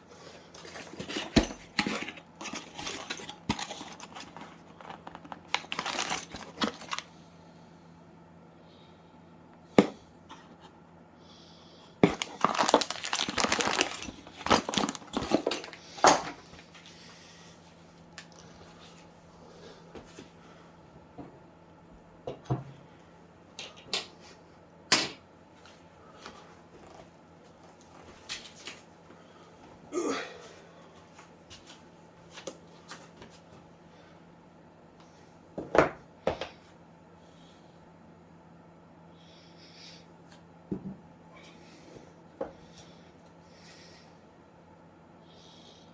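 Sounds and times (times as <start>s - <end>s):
packaging rustling and crinkling: 0.6s - 7.0s, 12.0s - 16.9s.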